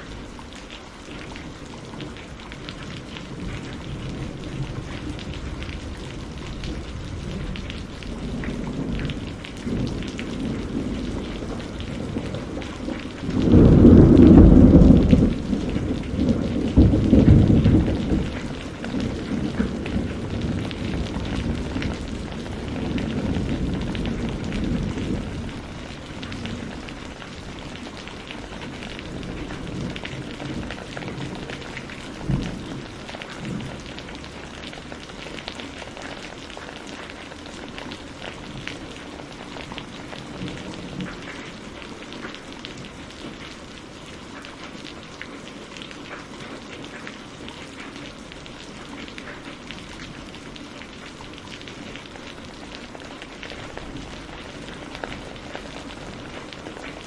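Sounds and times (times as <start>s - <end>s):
rain pattering: 0.0s - 57.0s
thunder rumble: 2.1s - 35.0s.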